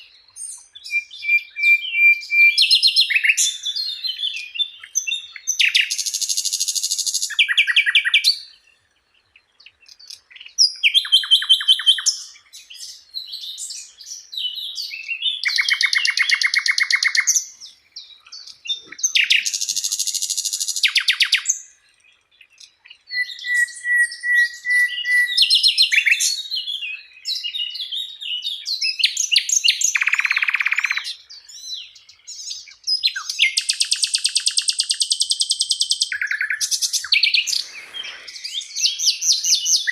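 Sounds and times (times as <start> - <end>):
songbird trills and buzzy calls: 0.0 - 39.9
whistled bird note: 23.1 - 27.9, 32.4 - 39.9.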